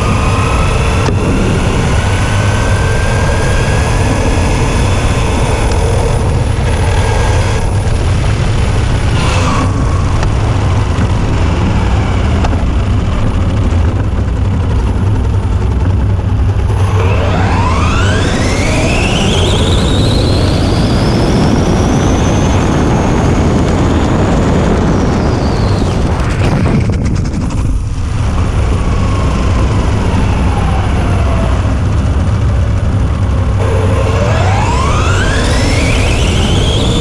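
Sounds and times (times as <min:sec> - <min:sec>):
electric motor whine: 0:00.0 - 0:22.8, 0:33.4 - 0:37.0
loud rushing noise: 0:00.0 - 0:37.0.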